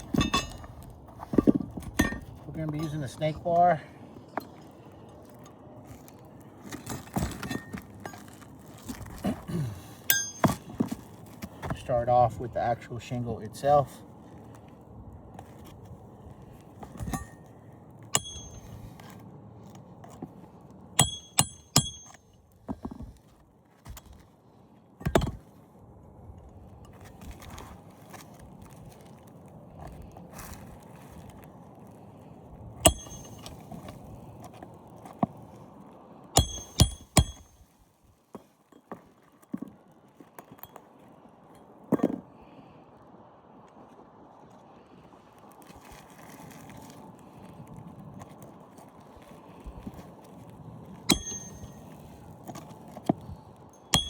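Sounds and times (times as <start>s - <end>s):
hammer striking nails: 18.2s - 18.7s, 21.0s - 22.2s, 32.9s - 33.5s, 36.4s - 37.5s, 51.1s - 51.8s.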